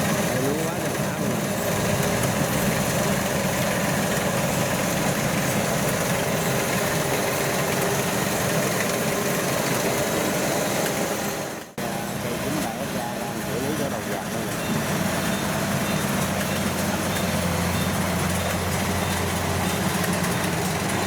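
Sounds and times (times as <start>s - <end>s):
diesel engine drone and rattle: 0.0s - 21.0s.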